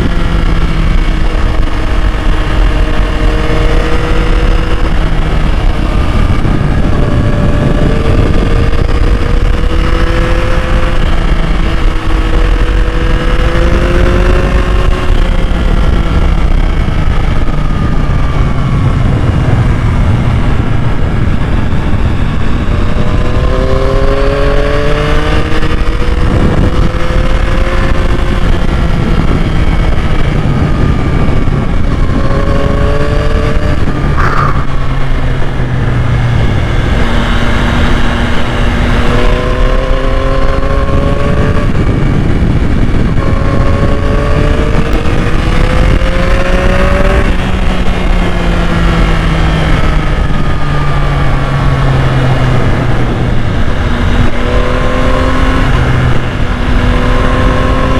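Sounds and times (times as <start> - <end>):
heavy wind noise: 0.0 - 57.9
motorcycle engine revving: 0.0 - 57.9.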